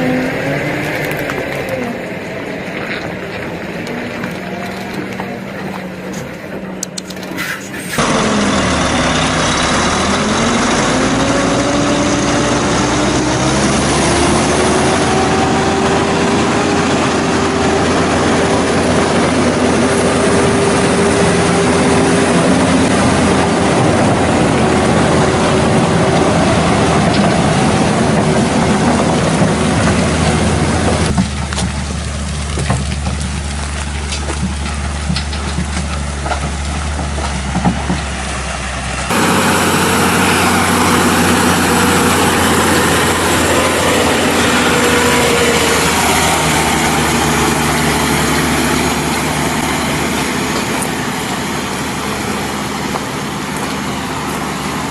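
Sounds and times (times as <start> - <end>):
heavy truck engine under load: 0.0 - 54.9
loud rushing noise: 39.1 - 54.9.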